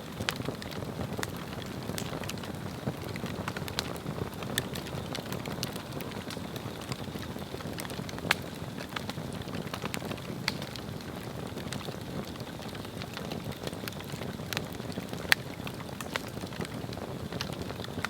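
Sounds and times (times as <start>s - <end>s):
log fire crackling and popping: 0.0s - 18.0s.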